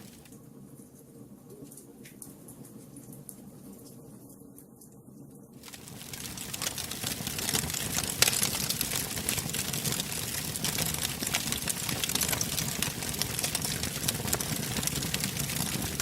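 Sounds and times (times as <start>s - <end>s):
wood fire crackling and popping: 0.0s - 0.4s, 5.6s - 16.0s
low rush of flame: 5.6s - 16.0s.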